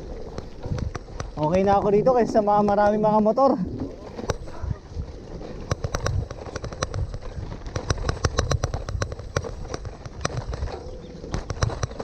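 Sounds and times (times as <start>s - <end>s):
bike rattling over stony trail: 0.0s - 12.0s.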